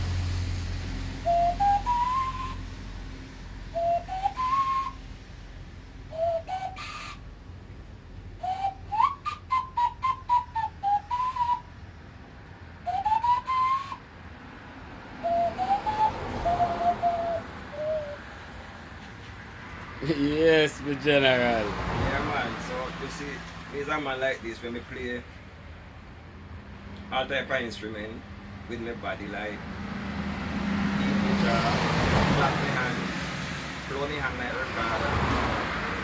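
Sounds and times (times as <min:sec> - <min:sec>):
man whistling a tune: 0:01.2 - 0:02.8, 0:03.7 - 0:05.1, 0:06.1 - 0:07.3, 0:08.4 - 0:11.8, 0:12.8 - 0:14.1, 0:15.2 - 0:18.2.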